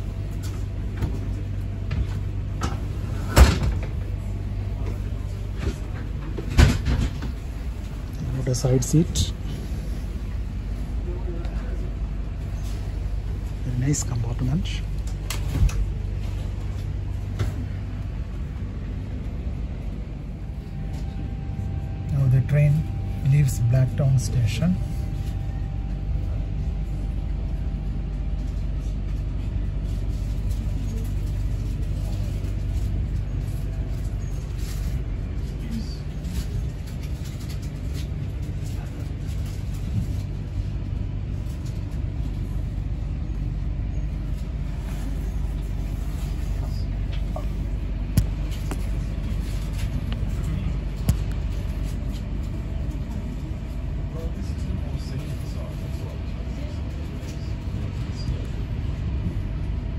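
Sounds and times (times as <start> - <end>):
train rumble: 0.0 - 59.9.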